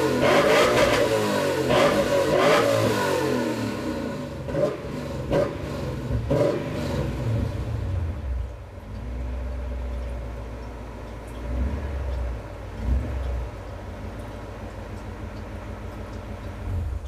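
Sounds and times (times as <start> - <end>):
car engine throttle blips: 0.0 - 17.0
car engine idling: 3.4 - 17.0.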